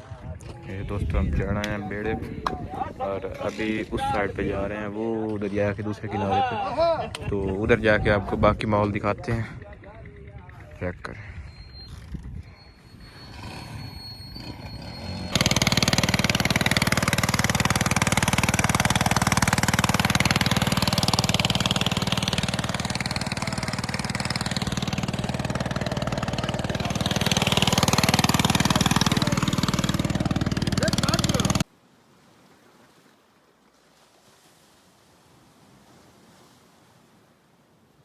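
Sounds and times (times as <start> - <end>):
boat engine running: 0.0 - 31.6.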